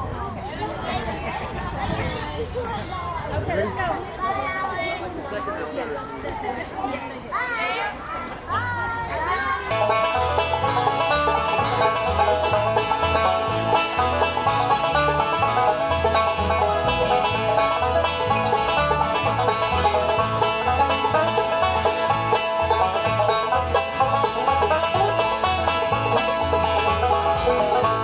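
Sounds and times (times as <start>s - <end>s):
fast picked banjo: 8.7s - 28.0s.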